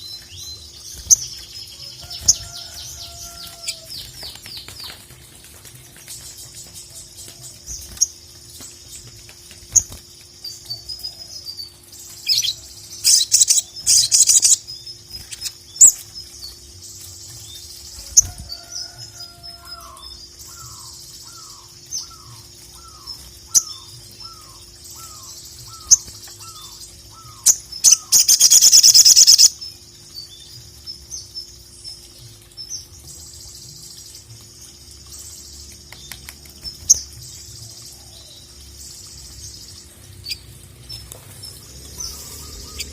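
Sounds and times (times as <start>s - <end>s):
sunbird chirping and trilling: 0.0s - 42.9s.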